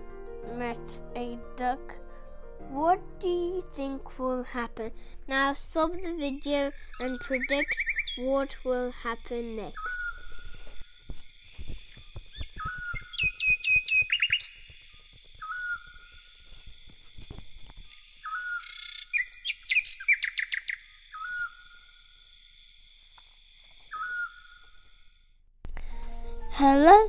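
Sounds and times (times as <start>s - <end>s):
birds singing: 6.6s - 8.6s, 9.7s - 10.9s, 11.5s - 22.0s, 23.8s - 24.7s
quick trilling bird notes: 12.6s - 14.8s.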